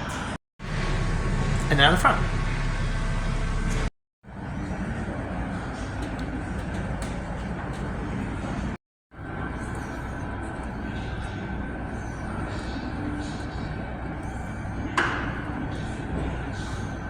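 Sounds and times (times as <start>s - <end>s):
workshop noise: 0.0s - 17.0s
engine running low rumble: 0.6s - 17.0s.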